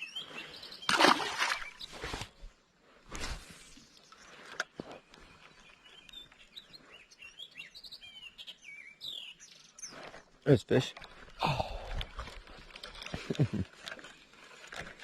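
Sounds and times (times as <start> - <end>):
small birds chirping: 0.0 - 2.8, 3.5 - 14.1.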